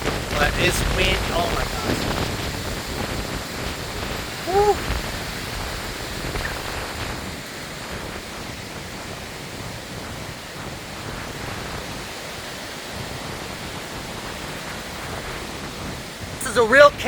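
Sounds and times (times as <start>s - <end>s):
gusting wind: 0.0s - 17.0s
heavy rain: 0.0s - 17.0s.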